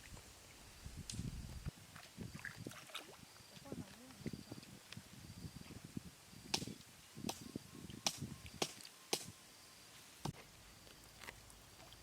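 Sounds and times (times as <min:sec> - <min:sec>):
sharp slaps and clicks: 0:06.5 - 0:07.4, 0:08.1 - 0:09.3.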